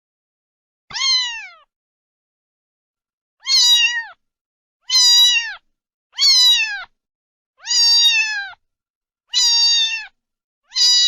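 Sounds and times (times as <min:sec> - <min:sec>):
cat meowing: 0:00.9 - 0:01.7, 0:03.4 - 0:04.2, 0:04.8 - 0:07.0, 0:07.6 - 0:08.6, 0:09.3 - 0:11.0.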